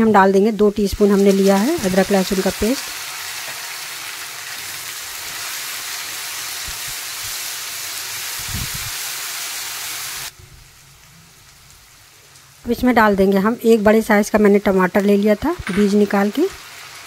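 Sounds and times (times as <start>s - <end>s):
paste sizzling in hot oil: 0.6s - 10.3s.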